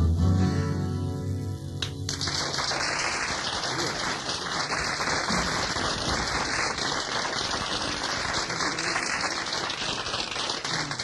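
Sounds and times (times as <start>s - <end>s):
audience clapping: 1.8s - 11.0s.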